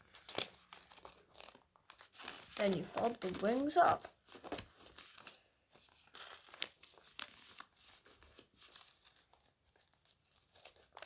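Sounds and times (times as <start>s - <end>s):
paper crinkling while folded: 0.0s - 11.0s
sharp paper ticks: 0.1s - 5.3s.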